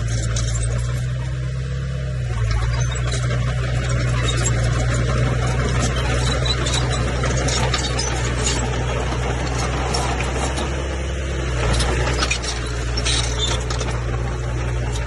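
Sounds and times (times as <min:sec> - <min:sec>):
bulldozer diesel engine droning: 0:00.0 - 0:15.0
metal clanks and rattles: 0:02.4 - 0:10.8.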